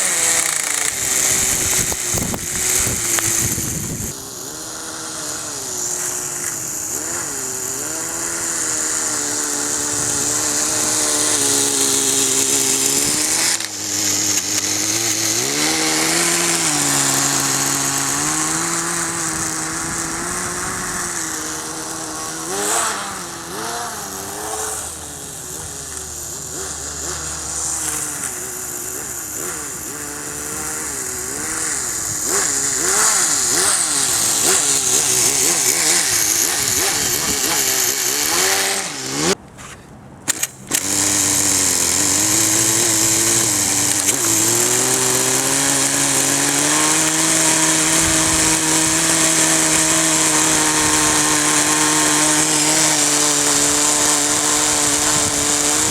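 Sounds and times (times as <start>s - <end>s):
small nitro engine revving: 0.0s - 55.9s.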